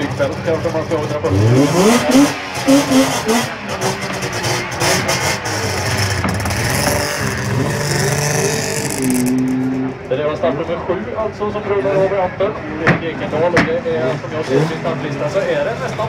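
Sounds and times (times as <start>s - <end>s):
two-stroke car engine revving: 0.0s - 10.0s, 13.4s - 16.0s.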